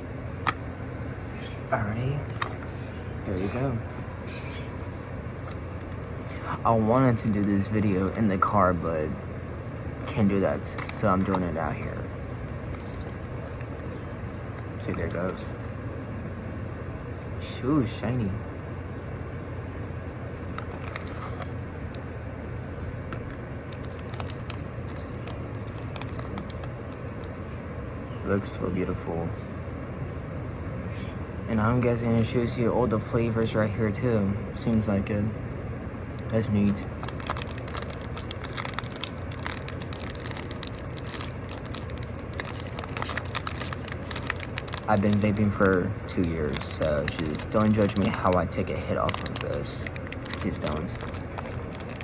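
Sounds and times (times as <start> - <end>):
low steady hum: 0.0 - 52.0
steady low rumble: 0.0 - 52.0
plastic packaging crinkling: 10.0 - 15.1, 20.5 - 22.0, 23.1 - 27.6, 36.2 - 52.0.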